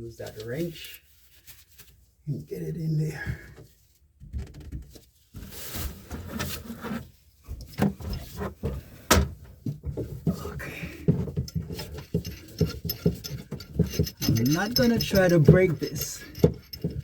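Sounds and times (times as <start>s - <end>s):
wrench scraping and knocking: 9.8s - 17.0s.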